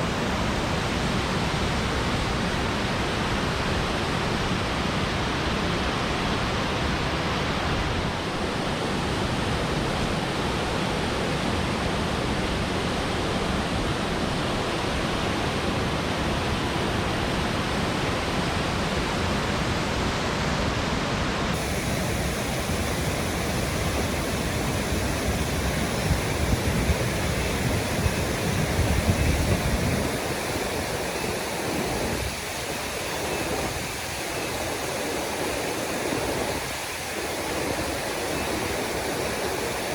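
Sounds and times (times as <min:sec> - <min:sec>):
waterfall rushing: 0:13.2 - 0:39.9.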